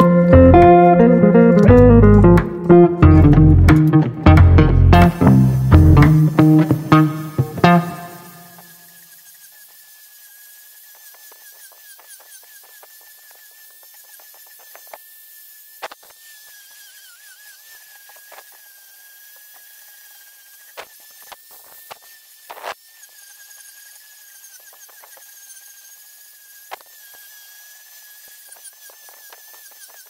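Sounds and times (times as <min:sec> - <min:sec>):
angle grinder whine: 0:00.0 - 0:09.2.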